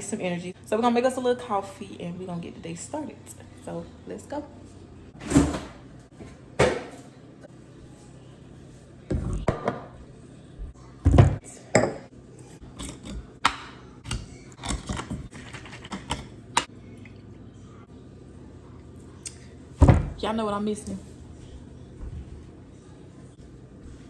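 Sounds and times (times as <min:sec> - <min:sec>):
kitchen utensils clicking and clattering: 0:12.6 - 0:16.7.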